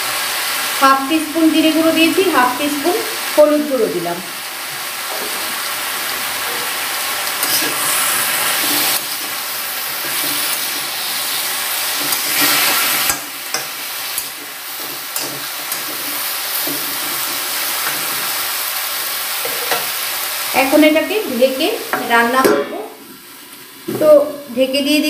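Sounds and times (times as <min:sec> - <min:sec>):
vegetables sizzling in a pan: 0:00.0 - 0:25.0
metal spatula scraping a pan: 0:04.7 - 0:18.5, 0:19.4 - 0:20.0.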